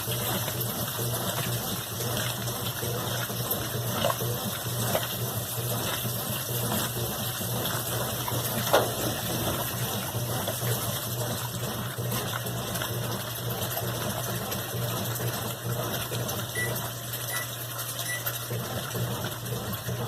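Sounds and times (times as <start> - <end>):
washing machine running: 0.0 - 20.0
water gushing: 0.0 - 20.0.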